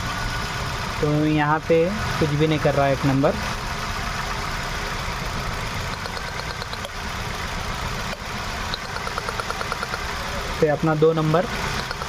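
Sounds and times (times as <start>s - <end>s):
car engine idling unevenly: 0.0s - 12.0s
fast regular ticking: 5.0s - 12.0s.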